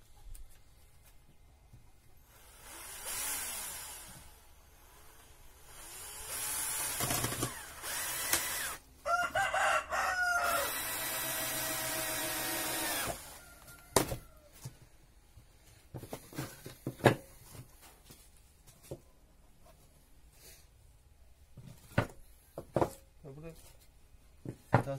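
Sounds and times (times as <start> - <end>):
power drill running: 2.2 - 8.8, 10.4 - 13.4
rooster crowing: 9.0 - 11.0, 13.1 - 14.6.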